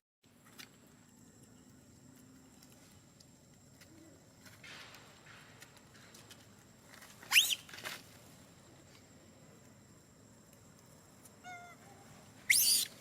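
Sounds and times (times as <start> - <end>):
animal's high rising call: 12.5 - 13.0.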